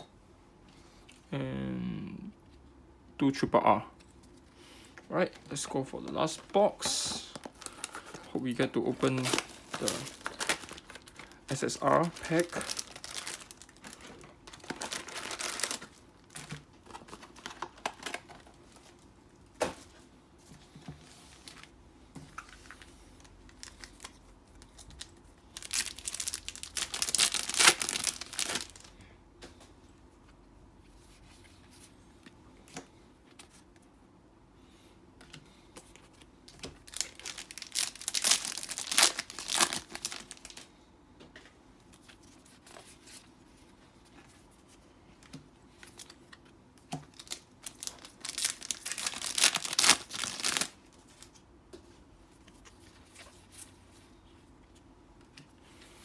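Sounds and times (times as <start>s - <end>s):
plastic packaging crinkling and tearing: 5.3s - 19.0s, 22.4s - 28.9s, 36.0s - 40.7s, 47.0s - 51.4s.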